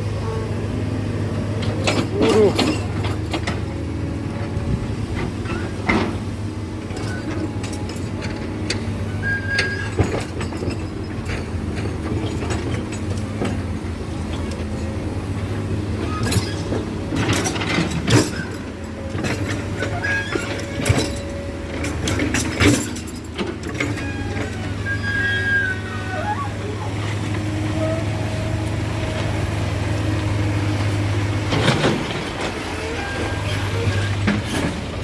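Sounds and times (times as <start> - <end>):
diesel excavator running: 0.0 - 35.0
metal clanks and knocks: 5.1 - 25.0, 31.5 - 35.0
steel squealing: 9.1 - 10.1, 18.3 - 29.0, 32.7 - 34.7.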